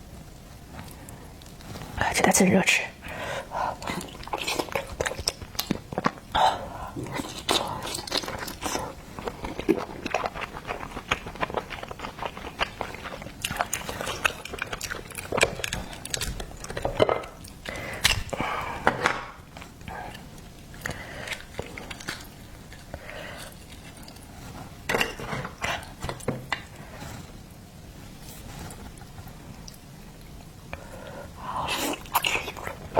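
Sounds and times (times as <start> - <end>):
person chewing wetly: 3.7 - 18.5, 19.4 - 24.3, 31.7 - 32.9.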